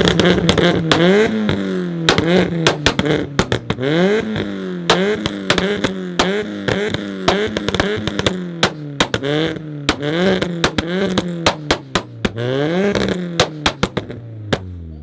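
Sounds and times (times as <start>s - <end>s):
exhaust pops and bangs: 0.0s - 14.9s
car engine revving: 0.0s - 15.0s.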